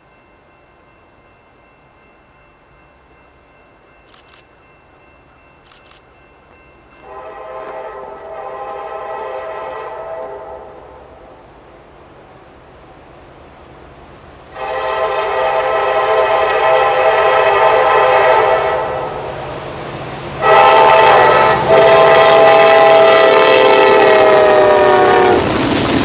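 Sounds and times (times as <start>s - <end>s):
low train rumble: 0.0s - 26.0s
locomotive air horn blasts: 7.0s - 11.3s, 14.6s - 19.3s, 20.4s - 25.5s.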